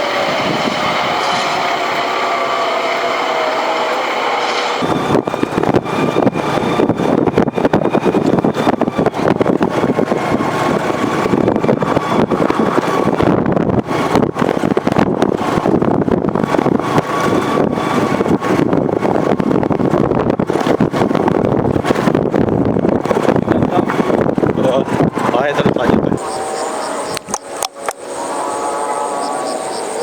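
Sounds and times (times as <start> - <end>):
train rumbling past: 0.0 - 30.0
faint high whine: 25.7 - 30.0.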